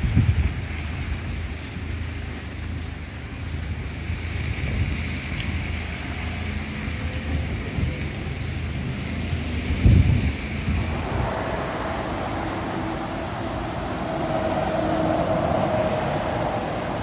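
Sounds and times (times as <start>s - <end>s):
wind buffeting microphone: 0.0s - 2.7s, 7.0s - 17.0s.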